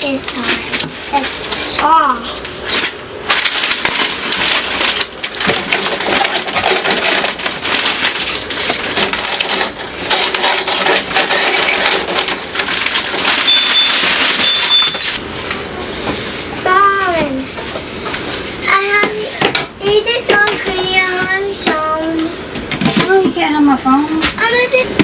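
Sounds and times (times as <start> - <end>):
household items clattering: 0.0 - 15.2
short high beeps: 13.4 - 15.2.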